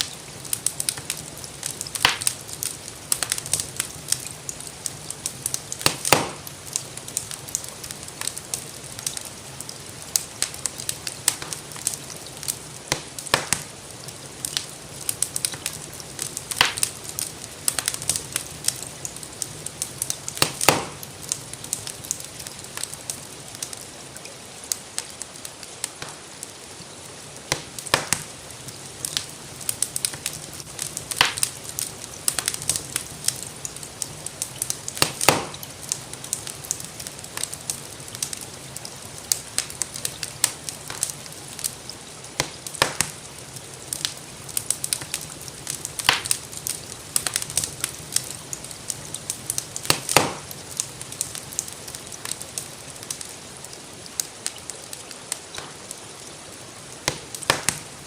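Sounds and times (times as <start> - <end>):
rain hiss: 0.0 - 58.0
wood fire crackling: 0.0 - 58.0.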